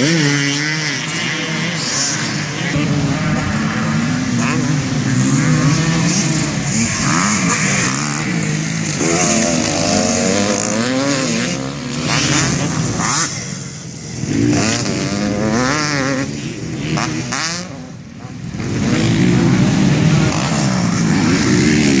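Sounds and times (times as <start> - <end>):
dirt bike engines revving: 0.0 - 22.0.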